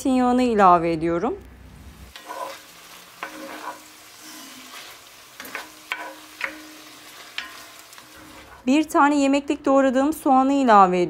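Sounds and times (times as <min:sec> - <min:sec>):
chicken sizzling in a pan: 0:02.0 - 0:08.7
wooden spoon scraping a pan: 0:02.1 - 0:08.7.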